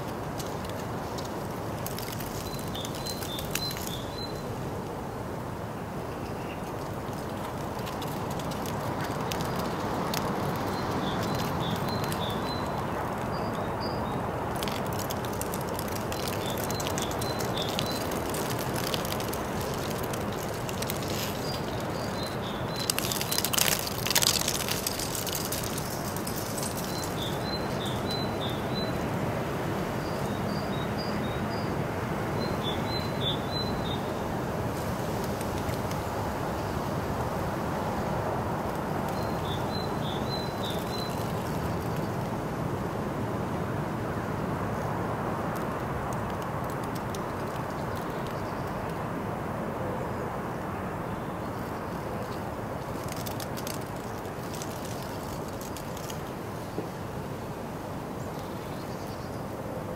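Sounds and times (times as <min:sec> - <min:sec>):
outdoor background noise: 0:00.0 - 0:59.9
small bird chirping: 0:10.5 - 0:14.1, 0:16.0 - 0:29.0.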